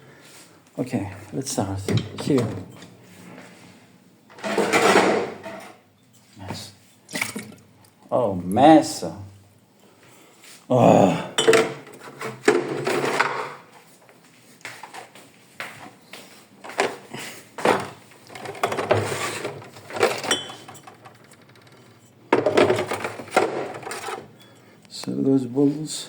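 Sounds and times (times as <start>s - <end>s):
hard objects clattering and clinking: 11.4s - 13.6s, 16.7s - 24.7s.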